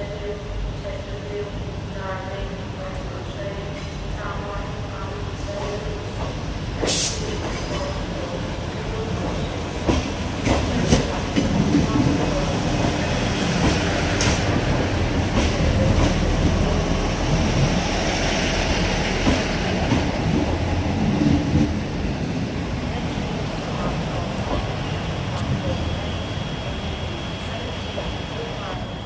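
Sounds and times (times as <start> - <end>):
diesel train engines rumbling: 0.0 - 29.0.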